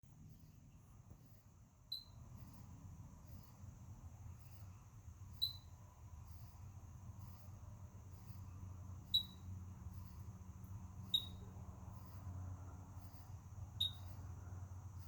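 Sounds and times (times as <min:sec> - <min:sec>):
faint low hum: 0:00.0 - 0:15.0
sharp high-pitched chirps: 0:01.9 - 0:02.6, 0:05.3 - 0:06.6, 0:09.0 - 0:09.5, 0:11.0 - 0:11.4, 0:13.8 - 0:14.2.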